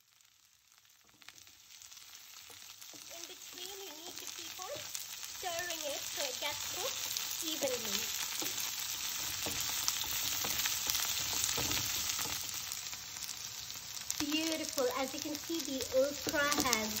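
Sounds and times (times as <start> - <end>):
okra sizzling in oil: 0.0 - 17.0
wooden spatula scraping pan: 6.8 - 12.6.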